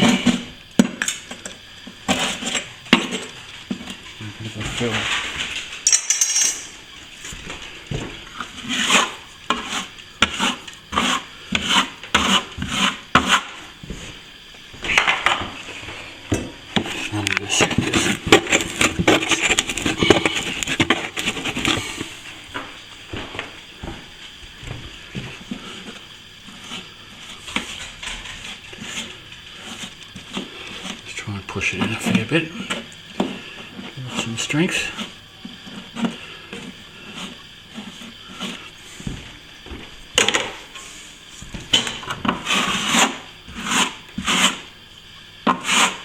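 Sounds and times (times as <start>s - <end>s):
filling knife scraping plaster: 8.4s - 13.6s, 25.6s - 31.0s, 33.4s - 38.8s, 42.3s - 44.7s, 45.4s - 46.0s.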